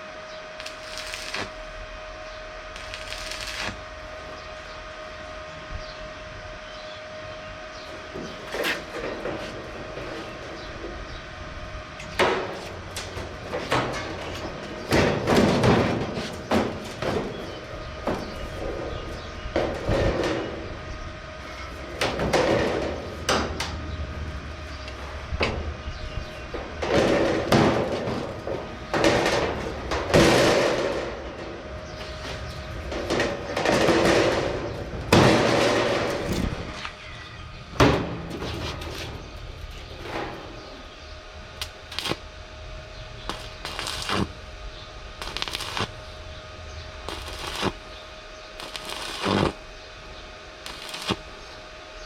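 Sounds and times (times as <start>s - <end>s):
faint steady hum: 0.0s - 52.0s
sheet metal clanking and scraping: 12.1s - 20.6s, 26.5s - 36.8s.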